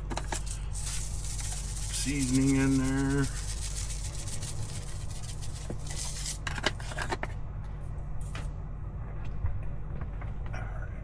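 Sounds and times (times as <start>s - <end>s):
steady low hum: 0.0s - 11.0s
seasoning being shaken: 0.4s - 6.4s.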